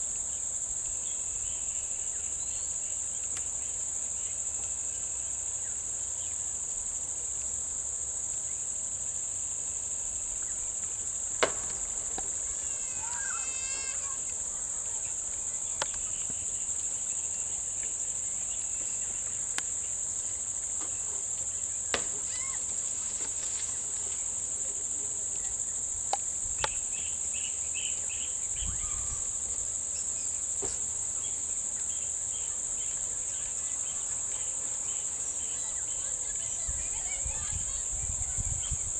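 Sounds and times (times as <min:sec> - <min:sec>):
insects droning: 0:00.0 - 0:38.9
faint chirps: 0:11.8 - 0:22.6, 0:26.5 - 0:38.9.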